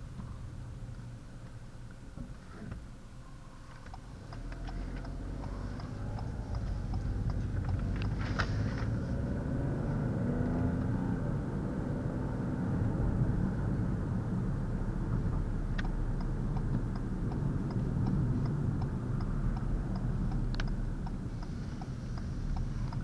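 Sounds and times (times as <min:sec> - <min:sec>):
car engine and road rumble: 0:00.0 - 0:23.0
light clicks and ticks: 0:03.7 - 0:09.0, 0:15.3 - 0:23.0.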